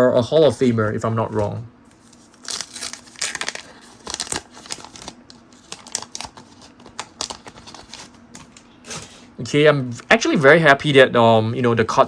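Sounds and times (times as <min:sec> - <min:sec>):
trading cards rustling and clicking: 0:01.4 - 0:09.2.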